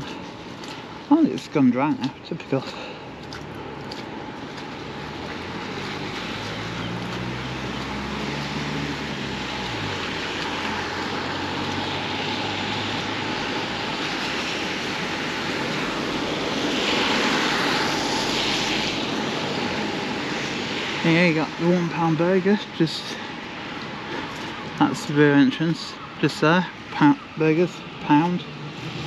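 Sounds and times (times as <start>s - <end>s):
vehicle engine humming: 0.0s - 22.5s
road and tyre noise: 0.0s - 29.0s.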